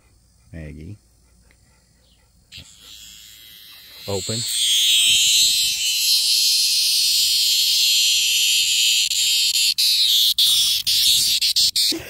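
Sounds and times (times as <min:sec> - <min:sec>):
cicada distress buzz: 0:02.4 - 0:12.0.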